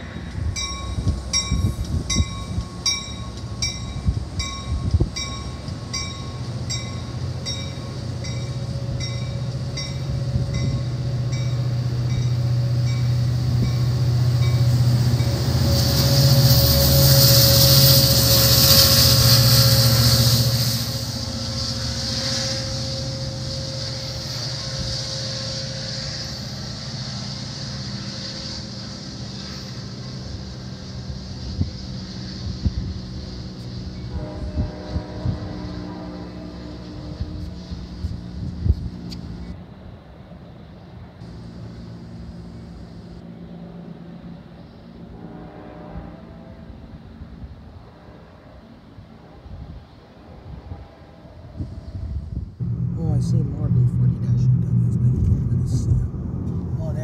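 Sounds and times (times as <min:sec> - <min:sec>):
diesel locomotive rumble: 0:00.0 - 0:57.0
loud hiss of passing train: 0:00.0 - 0:57.0
train bell ringing: 0:00.4 - 0:21.4.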